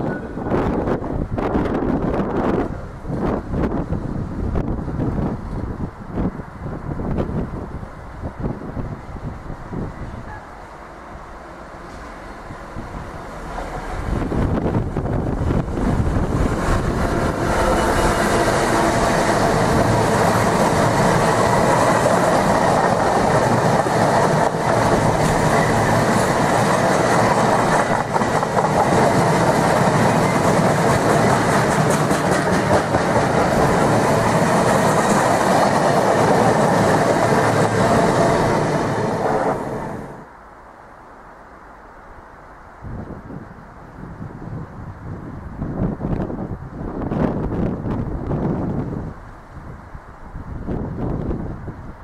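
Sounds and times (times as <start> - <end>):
train wheel and rail noise: 0.0 - 52.0.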